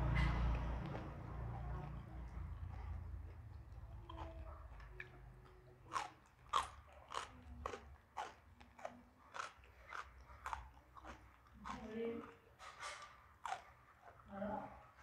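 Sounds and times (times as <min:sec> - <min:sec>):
crunchy chewing: 0:00.0 - 0:15.0.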